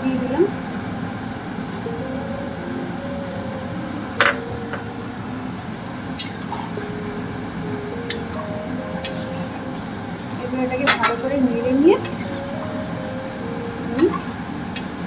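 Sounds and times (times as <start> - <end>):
steady background hum: 0.0 - 15.0
metal utensil clinking on pan: 8.1 - 9.5, 10.8 - 11.3, 11.9 - 12.5.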